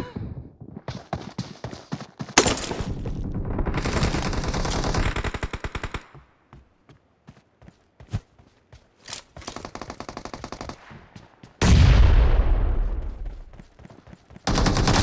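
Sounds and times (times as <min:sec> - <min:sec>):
video game gunfire: 0:14.4 - 0:15.0.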